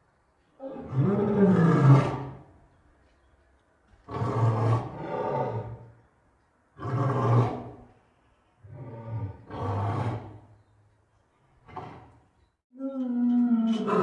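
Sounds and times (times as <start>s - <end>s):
lion roaring: 0.6s - 2.4s.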